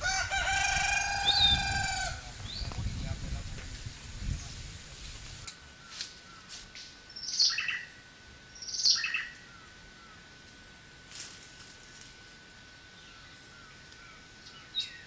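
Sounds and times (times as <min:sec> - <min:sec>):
bird calling descending notes: 0:00.0 - 0:02.6.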